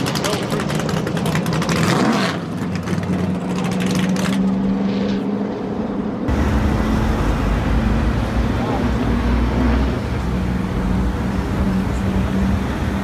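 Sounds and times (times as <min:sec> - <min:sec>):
car engine at high revs: 0:00.0 - 0:13.0
street traffic rumble: 0:00.0 - 0:13.0.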